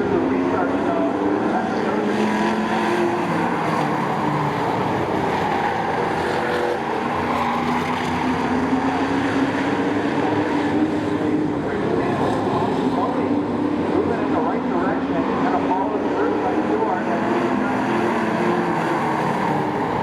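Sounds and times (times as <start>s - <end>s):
race truck engines: 0.0s - 20.0s.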